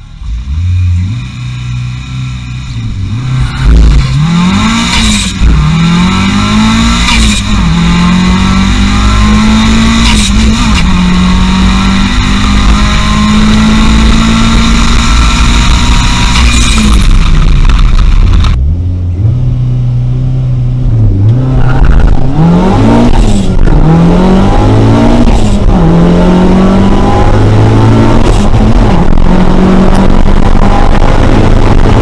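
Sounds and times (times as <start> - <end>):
race car engine accelerating: 0.0 - 19.6, 20.3 - 32.0
gear change crack: 3.3 - 8.0, 8.7 - 13.5, 14.4 - 18.6.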